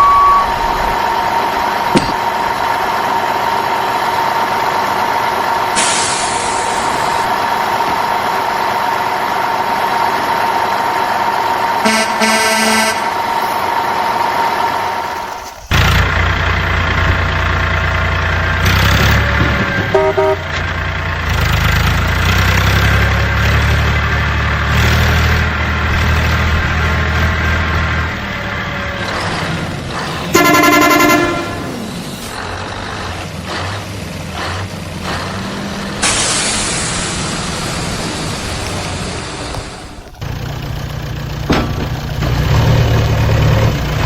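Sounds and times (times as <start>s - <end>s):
short horn beeps: 0.0s - 1.0s, 11.8s - 13.2s, 19.9s - 20.5s, 30.3s - 31.6s
vehicle engine running: 0.0s - 44.0s
air brake hissing: 5.7s - 8.5s, 35.2s - 40.2s.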